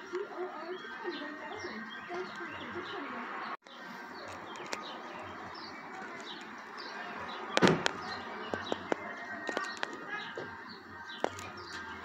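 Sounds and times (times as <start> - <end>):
small birds chirping: 0.0 - 12.0
sharp crack: 7.5 - 10.0.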